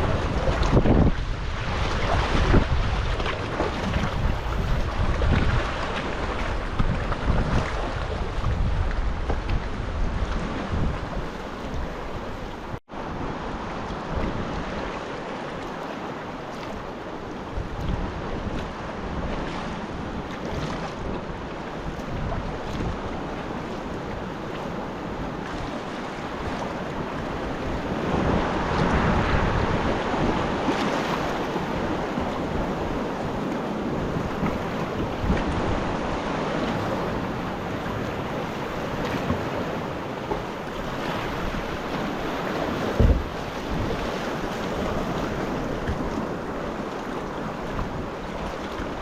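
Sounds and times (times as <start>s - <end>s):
wind buffeting the microphone: 0.0s - 15.2s, 16.5s - 49.0s
water slapping around a kayak: 0.0s - 49.0s
low thump: 43.0s - 43.3s.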